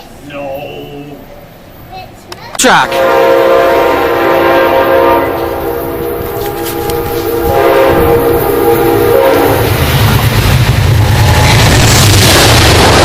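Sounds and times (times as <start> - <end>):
locomotive horn chord: 2.9 - 9.7.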